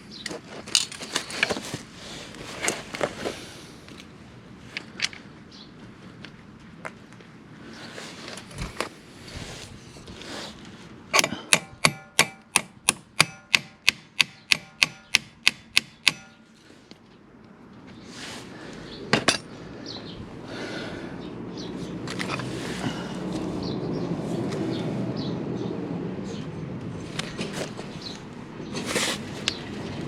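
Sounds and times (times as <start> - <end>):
hammer blows on metal: 11.2 - 16.4.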